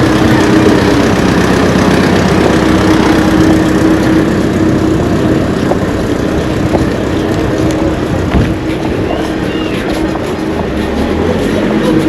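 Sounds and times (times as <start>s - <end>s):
engine humming: 0.0s - 12.0s
rushing noise: 0.0s - 12.0s.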